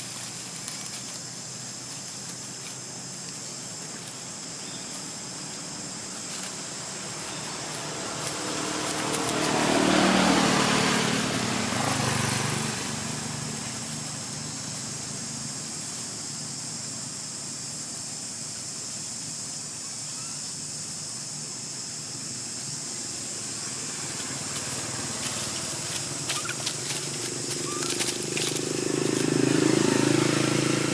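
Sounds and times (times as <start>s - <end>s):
insects droning: 0.0s - 30.9s
motor vehicle passing by: 6.1s - 15.5s, 22.9s - 30.9s.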